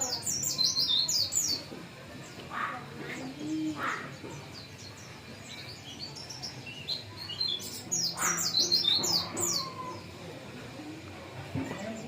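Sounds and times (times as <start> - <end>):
bird twittering: 6.3 - 10.1.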